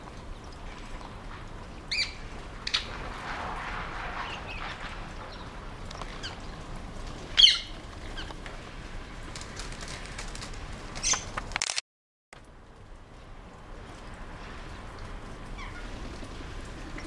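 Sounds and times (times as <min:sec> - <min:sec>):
rustle: 0:00.0 - 0:11.8, 0:12.4 - 0:17.0
parakeets screeching: 0:07.4 - 0:08.4.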